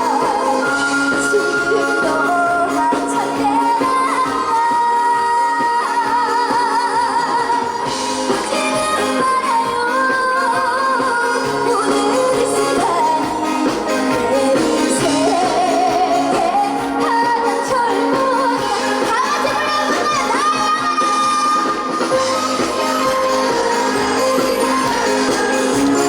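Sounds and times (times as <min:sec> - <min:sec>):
backing music: 0:00.0 - 0:26.0
woman singing: 0:00.0 - 0:26.0.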